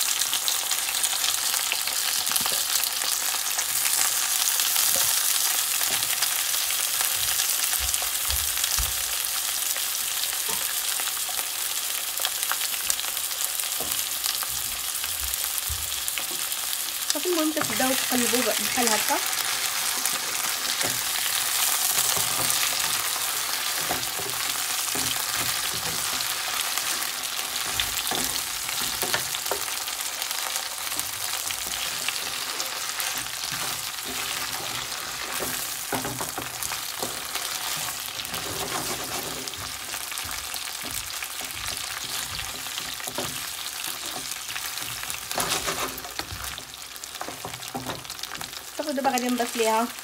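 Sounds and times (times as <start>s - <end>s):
food sizzling in oil: 0.0s - 50.0s
wooden spatula scraping pan: 17.3s - 29.9s, 30.9s - 48.6s.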